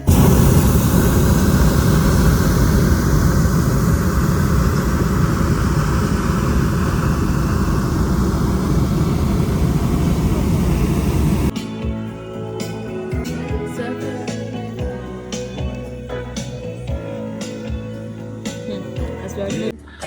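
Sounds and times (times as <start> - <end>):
propane burner rushing: 0.0 - 11.5.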